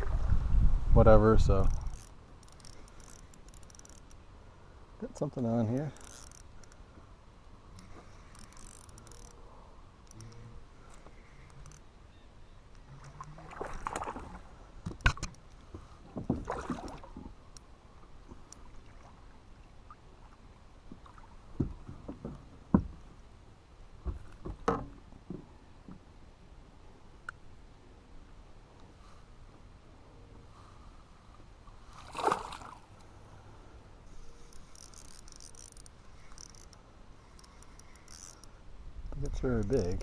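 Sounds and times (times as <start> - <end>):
water sloshing and splashing: 12.9 - 17.5, 18.2 - 22.6, 31.8 - 33.0.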